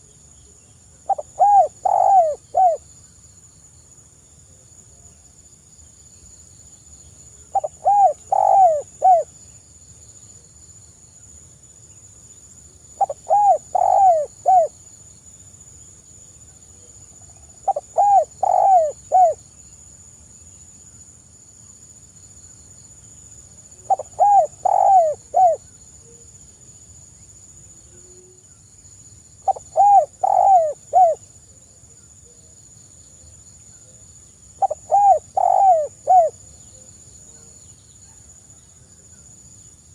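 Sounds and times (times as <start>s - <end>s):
dove cooing: 1.1s - 2.8s, 7.5s - 9.3s, 13.0s - 14.7s, 17.6s - 19.4s, 23.8s - 25.6s, 29.5s - 31.2s, 34.6s - 37.5s.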